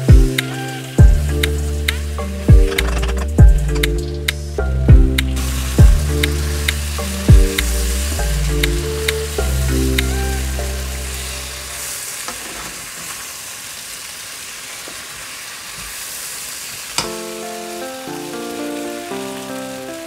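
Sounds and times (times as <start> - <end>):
background music: 0.0 - 12.0, 17.0 - 20.0
potatoes sizzling in a frying pan: 9.2 - 20.0.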